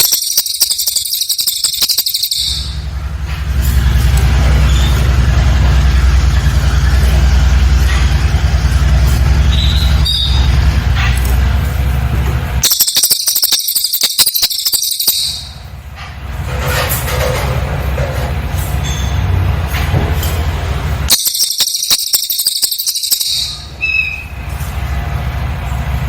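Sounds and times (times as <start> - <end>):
songbird trilling: 0.0 - 2.8, 12.6 - 15.6, 21.1 - 24.3.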